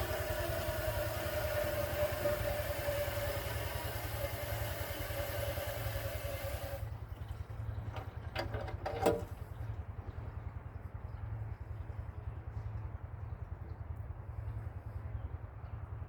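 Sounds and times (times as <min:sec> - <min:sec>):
hose water hissing: 0:00.0 - 0:06.9
low machine rumble: 0:00.0 - 0:16.0.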